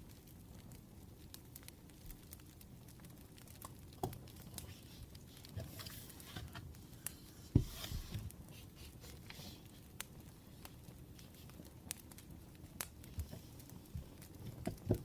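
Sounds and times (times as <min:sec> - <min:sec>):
paper rustling: 0:04.5 - 0:09.6.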